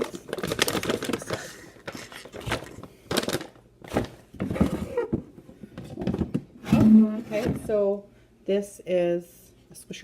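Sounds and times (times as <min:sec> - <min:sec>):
packaging rustling: 0:00.0 - 0:04.8
knocks and scrapes of plastic parts: 0:02.4 - 0:07.8.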